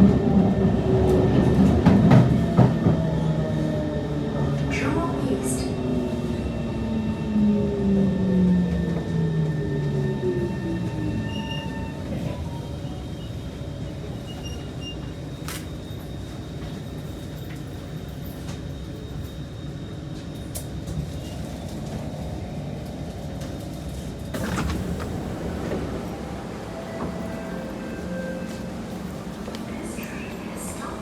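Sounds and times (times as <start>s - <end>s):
wheel and rail rumble: 0.0s - 31.0s
train clatter: 1.0s - 3.2s, 20.1s - 31.0s
train motor whine: 20.2s - 30.9s.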